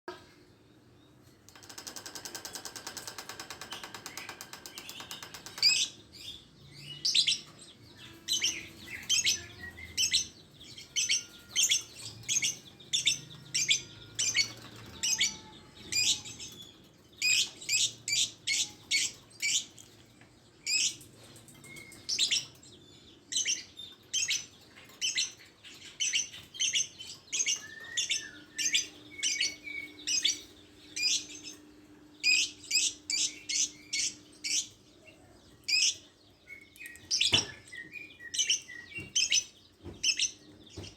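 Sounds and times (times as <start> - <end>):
rapid buzzing rattle: 1.5 - 5.8.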